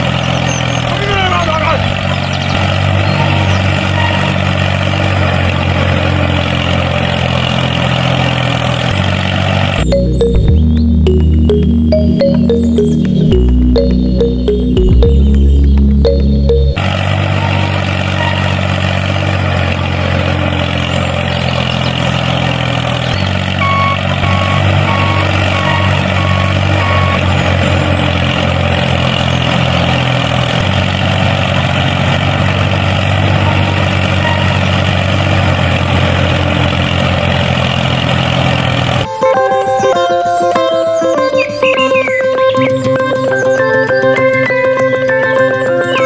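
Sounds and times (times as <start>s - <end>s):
large vehicle engine running: 0.0s - 46.0s
reversing alarm beeping: 3.1s - 4.4s, 9.8s - 18.6s, 23.2s - 28.5s, 33.3s - 34.8s.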